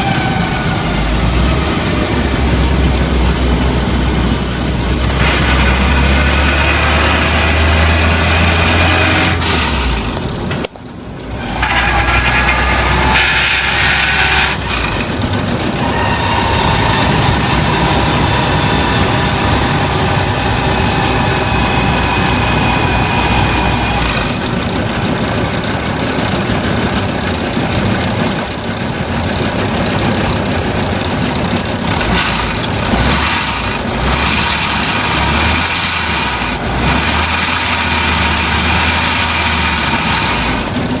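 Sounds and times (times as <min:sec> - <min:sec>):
vehicle engine running: 0:00.0 - 0:41.0
high whining tones: 0:11.3 - 0:24.9.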